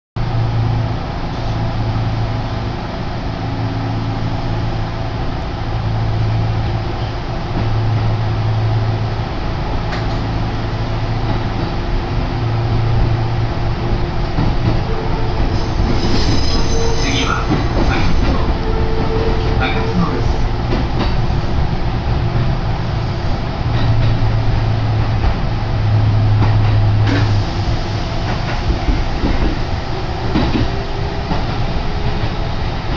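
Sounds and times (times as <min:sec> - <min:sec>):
train wheels rumbling on rail: 0:00.2 - 0:32.9
high wheel squeal: 0:15.0 - 0:19.9.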